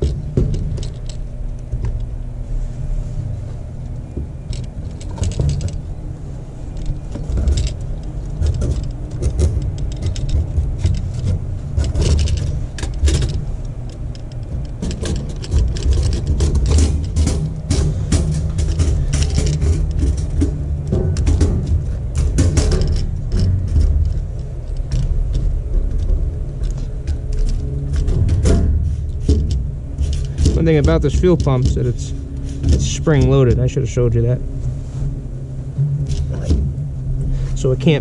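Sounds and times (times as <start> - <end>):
metal parts clinking and rattling: 0.0 - 2.4, 3.7 - 38.0
steady low rumble: 0.0 - 38.0.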